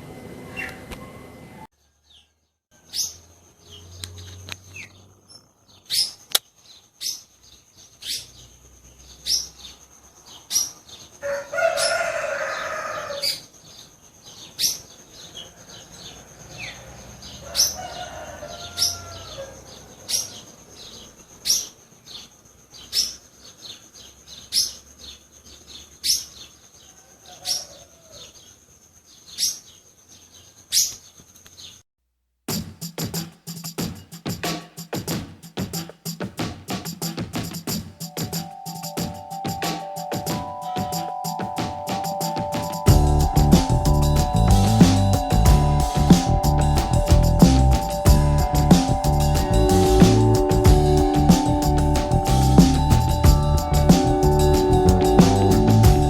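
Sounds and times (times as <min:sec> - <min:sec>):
small bird chirping: 0:01.5 - 0:17.8, 0:18.7 - 0:31.8, 0:37.0 - 0:56.0
rooster crowing: 0:11.2 - 0:13.4, 0:15.4 - 0:20.2, 0:26.9 - 0:28.4
steady high-pitched buzz: 0:42.8 - 0:56.0.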